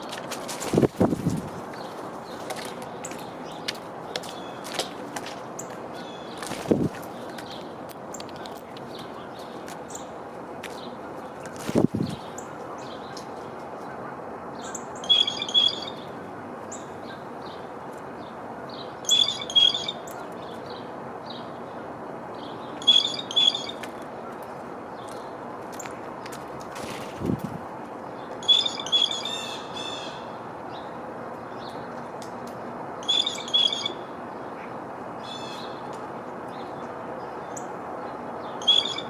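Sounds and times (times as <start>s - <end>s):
small birds chirping: 0.6s - 14.0s, 14.6s - 21.8s.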